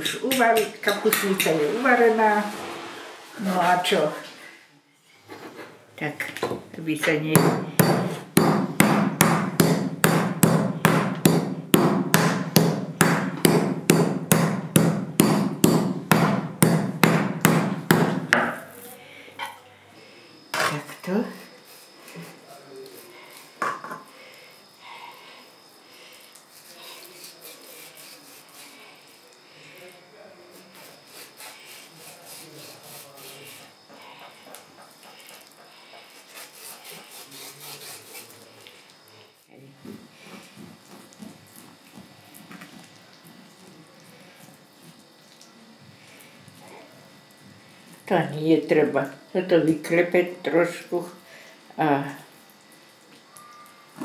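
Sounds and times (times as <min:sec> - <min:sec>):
meat mallet pounding on wood board: 0:07.4 - 0:18.6
knife cutting and scraping meat: 0:21.3 - 0:23.6, 0:25.4 - 0:29.9, 0:30.5 - 0:39.1, 0:40.2 - 0:43.6.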